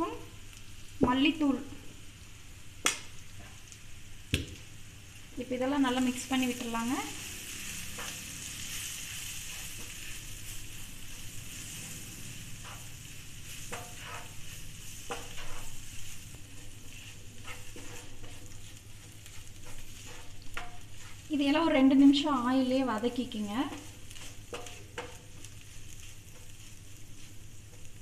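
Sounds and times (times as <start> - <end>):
masala sizzling in hot oil: 0.0 - 28.0
wooden spatula scraping a pan: 5.9 - 28.0.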